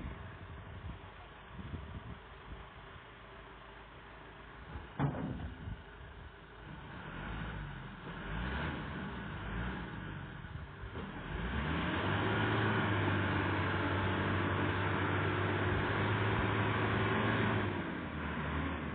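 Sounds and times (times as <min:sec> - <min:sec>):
vehicle engine revving: 0:06.6 - 0:18.9.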